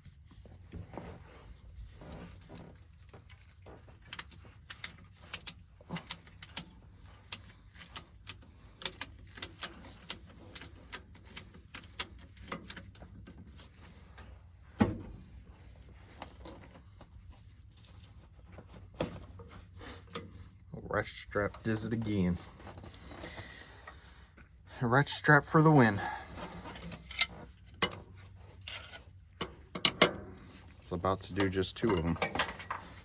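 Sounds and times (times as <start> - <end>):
ratchet strap clicking: 4.0 - 13.0.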